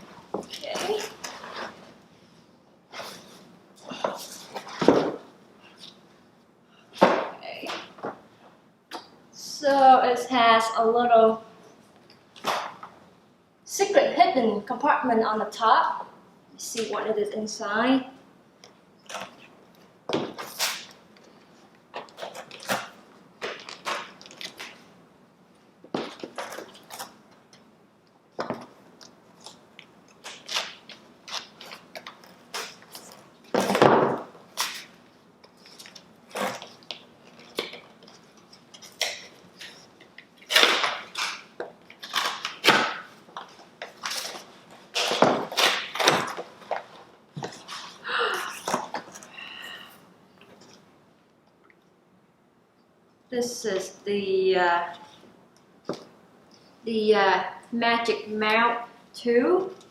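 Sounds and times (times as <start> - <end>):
packaging crinkling and rustling: 22.0 - 24.9, 34.5 - 48.0.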